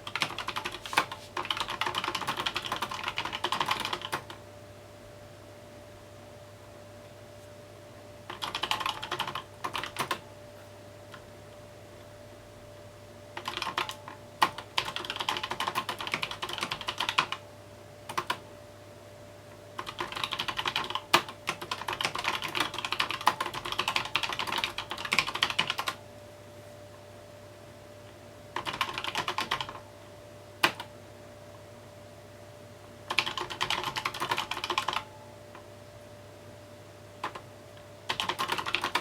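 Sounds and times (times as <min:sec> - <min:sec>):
mechanical keyboard typing: 0:00.0 - 0:04.4, 0:08.3 - 0:10.2, 0:13.4 - 0:17.4, 0:18.1 - 0:18.4, 0:19.8 - 0:26.0, 0:28.6 - 0:29.8, 0:33.1 - 0:35.1, 0:37.2 - 0:37.5, 0:38.1 - 0:39.0.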